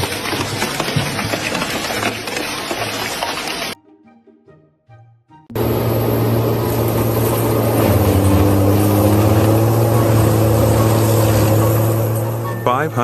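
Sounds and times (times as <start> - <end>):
heavy machine engine drone: 5.5 - 13.0.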